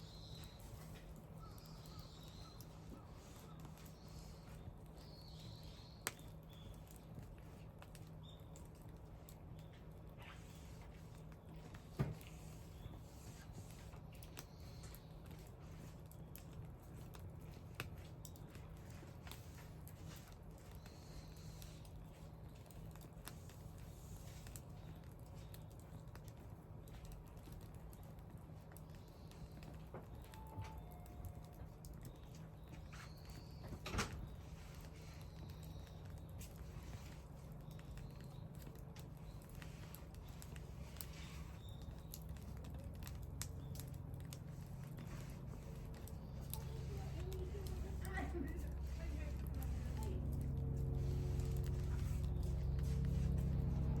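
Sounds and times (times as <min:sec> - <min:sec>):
wood fire crackling: 0:00.0 - 0:54.0
low steady rumble: 0:34.0 - 0:54.0.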